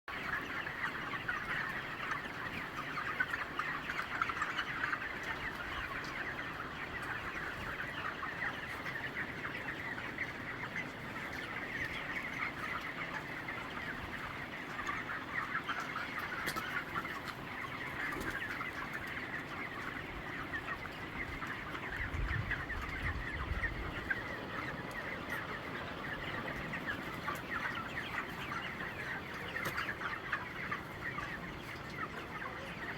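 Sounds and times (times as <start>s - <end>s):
chickens clucking: 0.1s - 32.9s.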